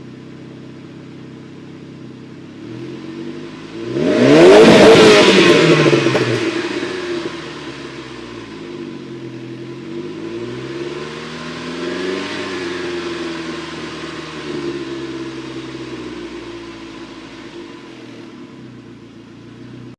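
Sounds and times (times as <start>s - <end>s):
car engine revving: 0.0s - 19.9s.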